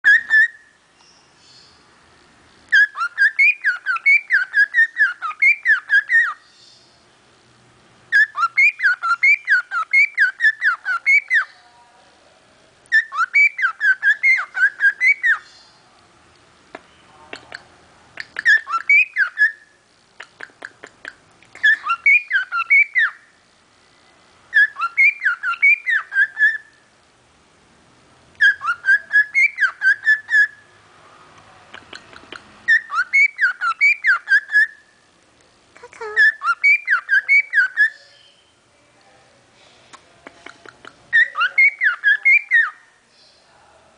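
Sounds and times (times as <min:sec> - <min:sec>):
parrot whistling: 0:00.0 - 0:00.6, 0:02.7 - 0:06.4, 0:08.1 - 0:11.5, 0:12.9 - 0:15.4, 0:18.2 - 0:19.7, 0:21.6 - 0:23.2, 0:24.5 - 0:26.7, 0:28.4 - 0:30.6, 0:31.9 - 0:34.8, 0:36.2 - 0:38.5, 0:41.1 - 0:42.8.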